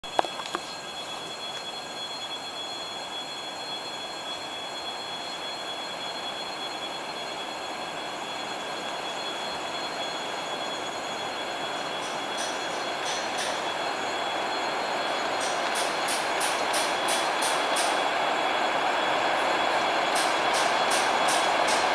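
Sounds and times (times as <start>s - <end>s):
steady high tone: 0.2s - 21.9s
rumble of wheels on rails: 9.6s - 21.9s.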